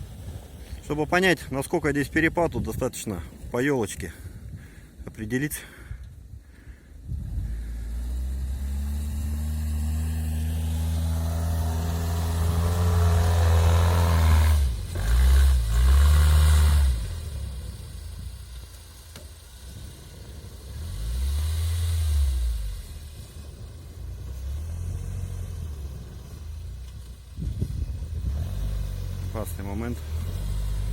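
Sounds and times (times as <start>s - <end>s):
vehicle engine working hard: 6.6s - 30.9s.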